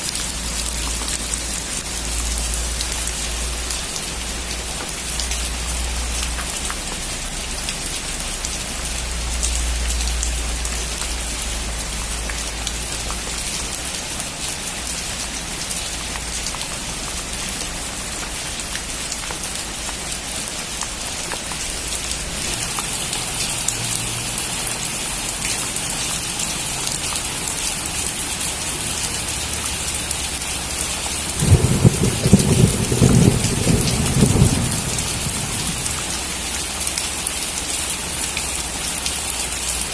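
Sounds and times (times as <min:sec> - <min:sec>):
steady rain falling: 0:00.0 - 0:39.9
low rumble of thunder: 0:31.3 - 0:36.4
crackling peal of thunder: 0:31.3 - 0:36.5.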